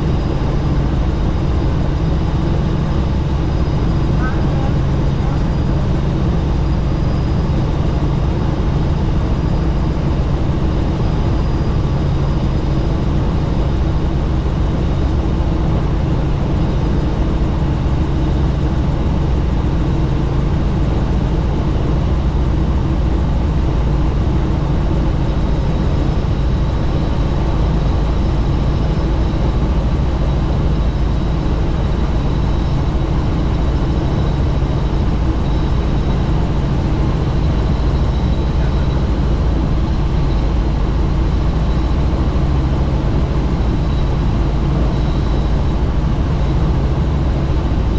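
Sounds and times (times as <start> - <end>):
helicopter rotor and engine drone: 0.0 - 47.9
faint high whine: 25.1 - 47.9.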